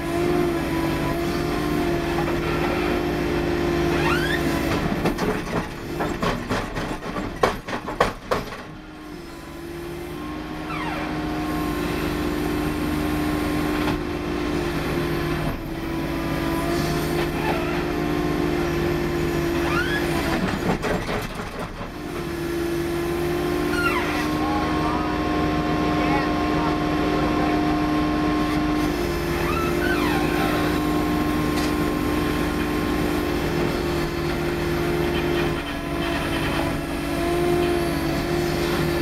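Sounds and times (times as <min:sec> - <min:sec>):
diesel engine under load: 0:00.0 - 0:39.0
short rising squeals: 0:10.6 - 0:11.3, 0:23.6 - 0:24.4, 0:29.3 - 0:31.0.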